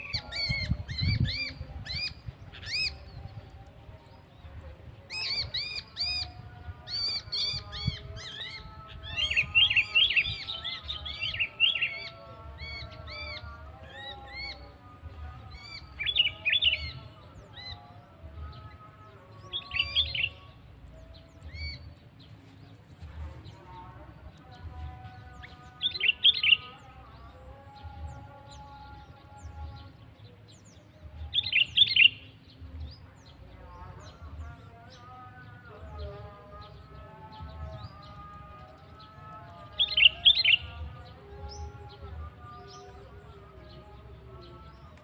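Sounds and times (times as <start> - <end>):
birds chirping: 15.4 - 45.0.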